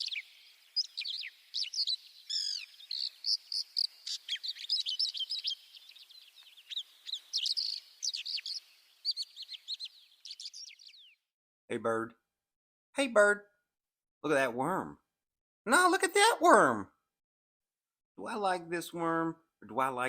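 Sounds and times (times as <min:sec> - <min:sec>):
songbirds chirping: 0:00.0 - 0:11.8.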